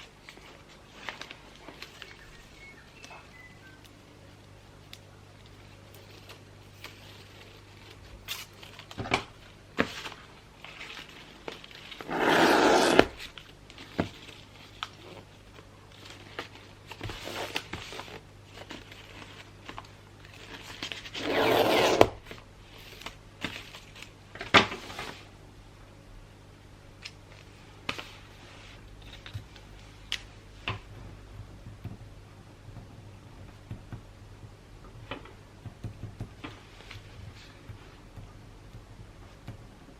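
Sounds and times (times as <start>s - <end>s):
paper crinkling: 0.0s - 3.8s, 4.4s - 24.2s
paper tearing: 12.0s - 13.3s, 21.1s - 22.2s.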